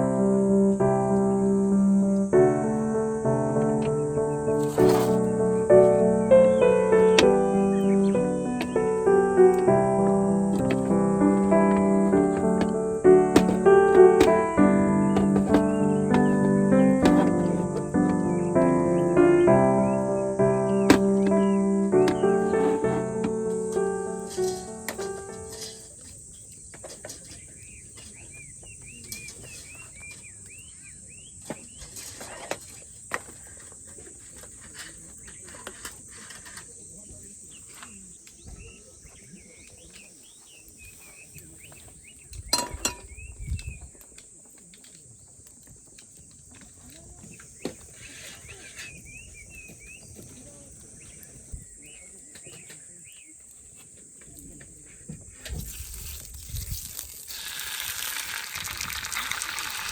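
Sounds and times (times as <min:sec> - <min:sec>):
high insect drone: 0:00.0 - 0:26.7
bird chirps: 0:03.6 - 0:25.8, 0:27.2 - 0:31.9, 0:47.2 - 0:53.4
cookware and utensils clinking: 0:42.5 - 0:43.1.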